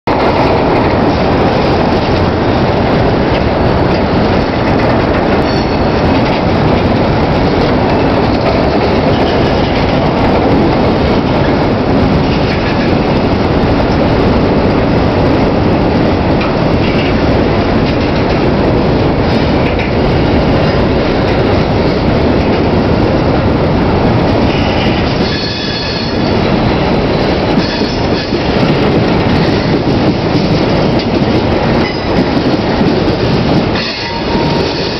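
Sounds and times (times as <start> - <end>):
railroad cars rumbling past: 0.0 - 34.9
wheel squeal: 25.2 - 26.2.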